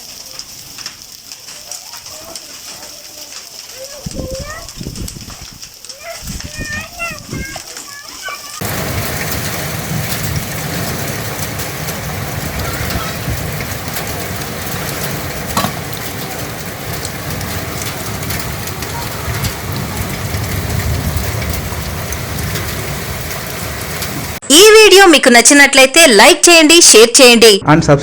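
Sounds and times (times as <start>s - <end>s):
heavy rain pouring: 0.0s - 24.4s
loud knock: 15.6s - 15.8s.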